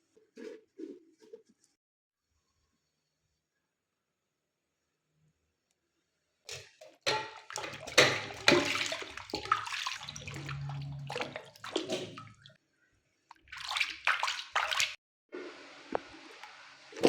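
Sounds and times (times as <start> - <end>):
water splashing and pouring: 6.5 - 12.6, 13.3 - 15.0.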